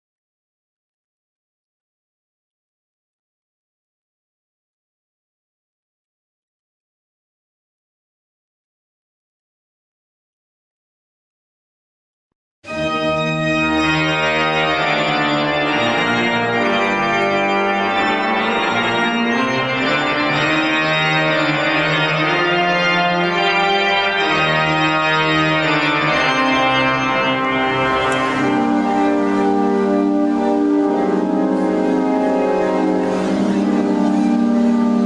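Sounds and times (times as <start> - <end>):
organ chords: 12.6 - 35.0.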